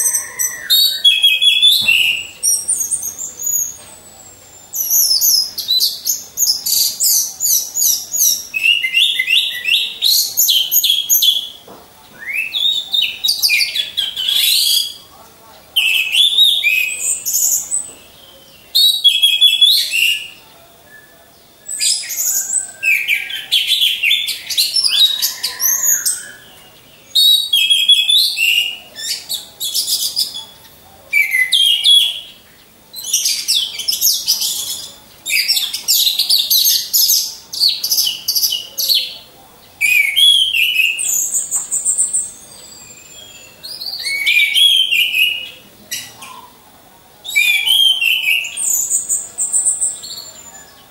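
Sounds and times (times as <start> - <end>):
thrush singing whistled notes: 0.0 - 15.1, 15.8 - 39.1, 39.7 - 46.4, 47.2 - 50.9.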